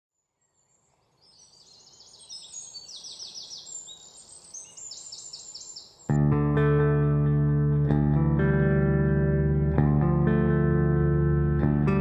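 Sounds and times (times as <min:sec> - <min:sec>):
birds singing falling chirps: 0:00.1 - 0:06.2
faint outdoor hiss: 0:00.1 - 0:12.0.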